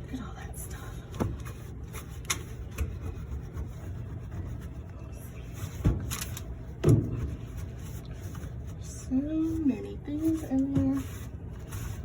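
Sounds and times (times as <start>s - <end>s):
duster scraping inside dryer: 0.6s - 12.0s.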